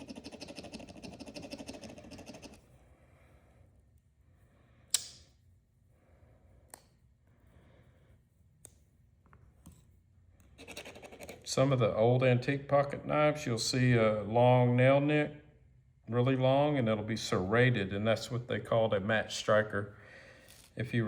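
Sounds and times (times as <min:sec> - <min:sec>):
scrubbing on knife blade: 0:00.0 - 0:02.6.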